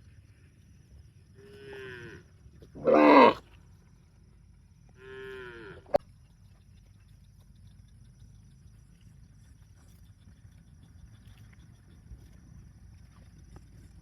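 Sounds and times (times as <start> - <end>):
cattle mooing: 2.8 - 3.4.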